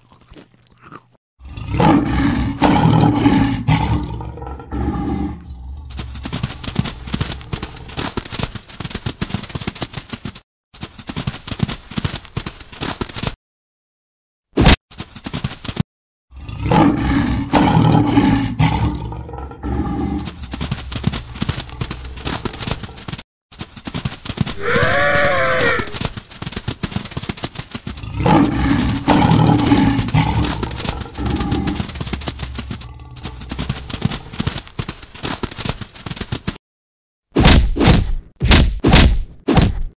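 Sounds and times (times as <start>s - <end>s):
cartoon lion roaring: 1.4s - 8.0s, 16.3s - 22.9s, 27.9s - 34.4s
running footsteps: 2.4s - 13.4s, 14.6s - 15.8s, 16.8s - 36.6s.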